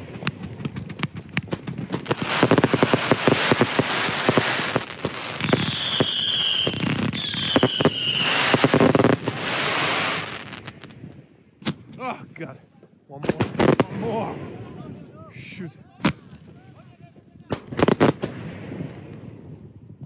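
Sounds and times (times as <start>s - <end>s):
fireworks cracks and pops: 0.0s - 11.0s, 16.0s - 18.6s
firework whistles: 2.1s - 10.8s.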